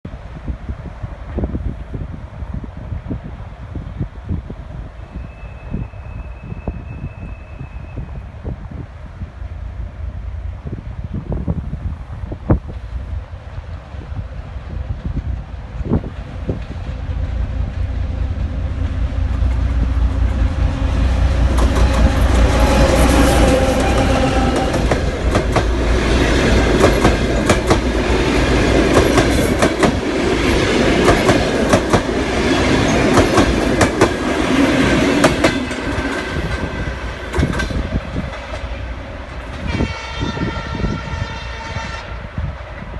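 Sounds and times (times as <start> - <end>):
locomotive engine rumble: 9.1 - 39.7.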